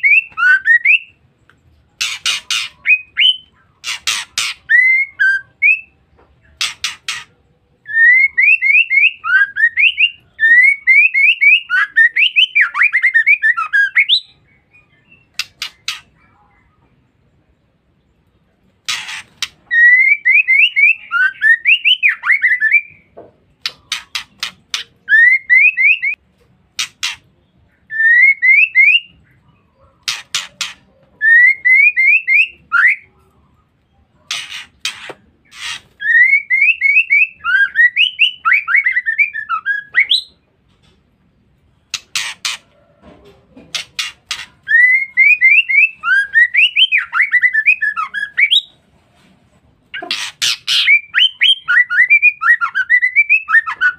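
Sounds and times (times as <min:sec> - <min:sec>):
bird whistling song phrases: 0:00.0 - 0:01.2, 0:02.0 - 0:06.0, 0:07.8 - 0:16.2, 0:19.6 - 0:26.2, 0:27.9 - 0:29.2, 0:30.1 - 0:33.1, 0:35.6 - 0:40.4, 0:44.6 - 0:48.7, 0:50.3 - 0:53.9
bird twittering: 0:02.0 - 0:16.7, 0:18.8 - 0:26.2, 0:26.8 - 0:40.4, 0:41.7 - 0:42.9, 0:49.9 - 0:53.9.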